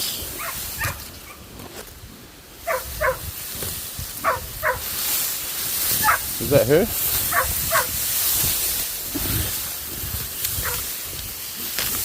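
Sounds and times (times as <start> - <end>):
dog barking: 0.4 - 1.4, 2.6 - 3.2, 4.2 - 4.9, 6.0 - 6.2, 7.3 - 7.9, 10.6 - 10.8.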